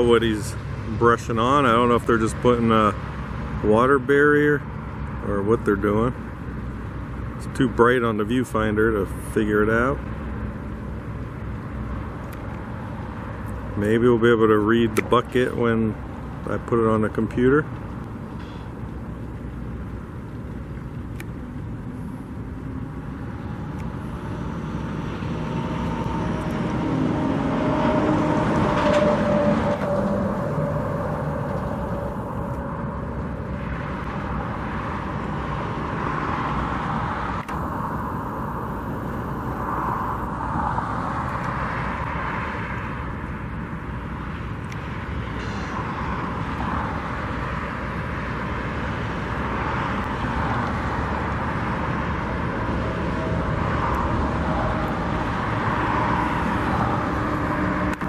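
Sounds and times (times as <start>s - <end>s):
road traffic passing: 0.0s - 58.0s
vehicle passing close: 0.0s - 58.0s.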